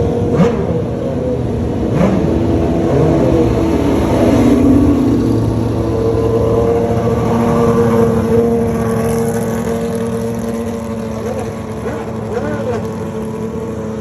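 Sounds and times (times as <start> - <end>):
car engine droning: 0.0 - 14.0.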